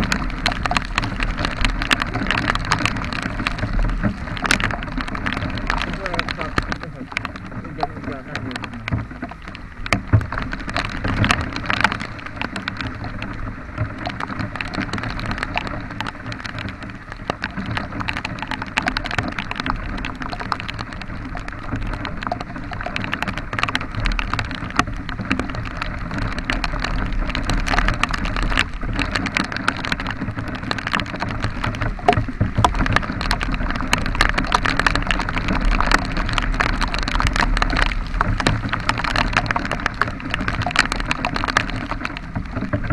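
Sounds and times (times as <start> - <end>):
steady low rumble: 0.0 - 17.5
heavy rain on microphone: 0.0 - 42.9.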